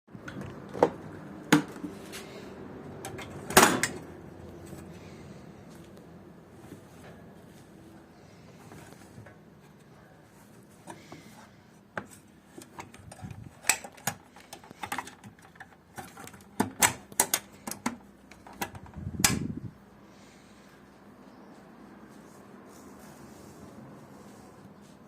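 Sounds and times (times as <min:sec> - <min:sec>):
sharp clicks and light knocks: 0:12.0 - 0:19.5.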